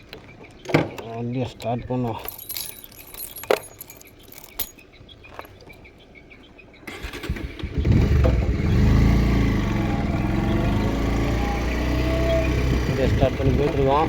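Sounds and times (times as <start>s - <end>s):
motorcycle engine starting and idling: 6.8s - 14.0s
engine starter clicks: 6.9s - 8.6s.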